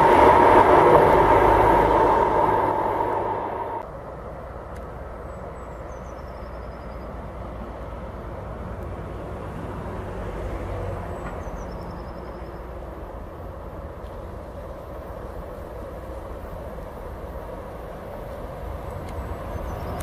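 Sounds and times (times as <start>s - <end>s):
train rumbling: 0.0s - 4.2s.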